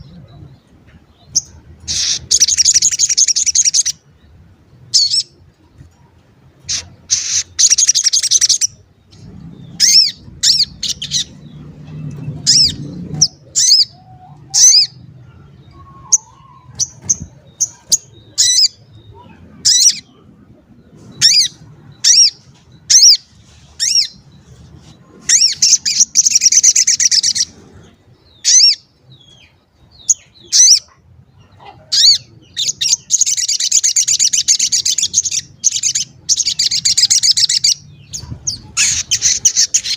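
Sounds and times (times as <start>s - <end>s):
bird chirping calls: 0.0s - 39.9s
rapid bird chattering: 1.3s - 4.0s, 6.7s - 11.6s, 30.0s - 39.9s.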